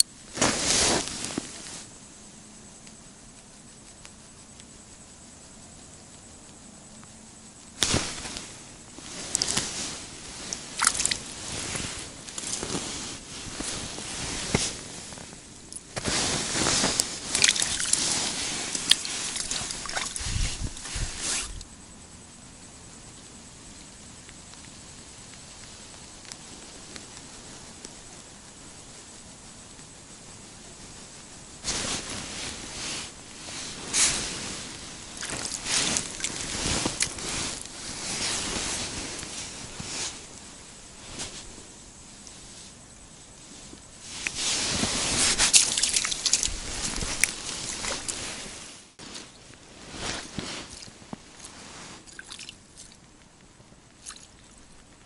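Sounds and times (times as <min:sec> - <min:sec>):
clothing rustling against camera: 0:00.0 - 0:02.0, 0:07.7 - 0:21.7, 0:31.6 - 0:41.7, 0:43.4 - 0:52.3.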